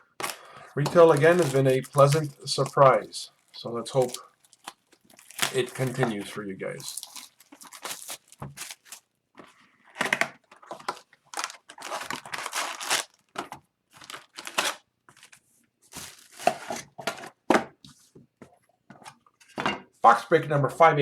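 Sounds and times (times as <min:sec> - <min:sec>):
packaging crinkling and tearing: 0:00.0 - 0:09.1, 0:09.9 - 0:17.3.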